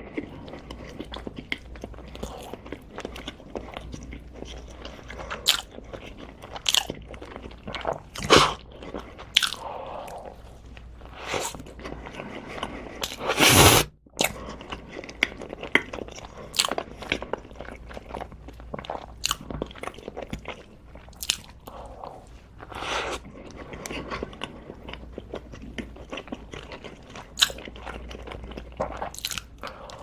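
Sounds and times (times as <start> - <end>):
person chewing crunchy food: 0.0 - 30.0.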